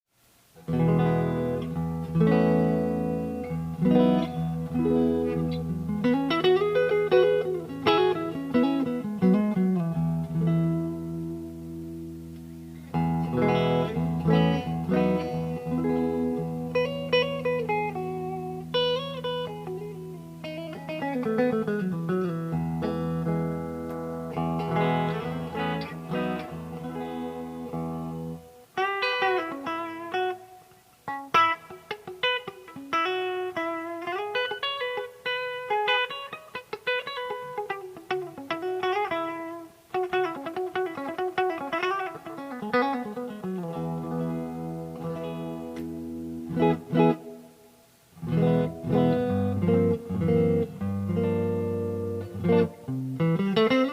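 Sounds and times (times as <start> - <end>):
electric guitar solo: 0.5 - 53.9.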